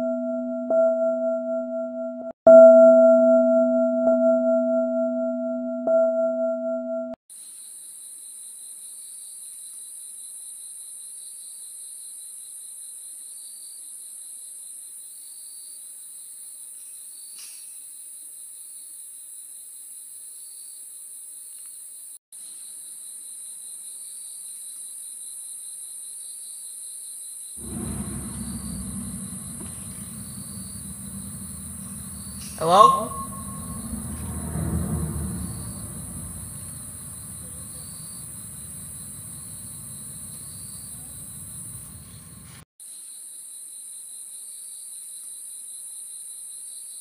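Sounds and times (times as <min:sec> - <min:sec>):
crickets chirping: 0:07.3 - 0:47.0
faint pulsing note: 0:27.6 - 0:42.5
low rumble: 0:27.6 - 0:42.6.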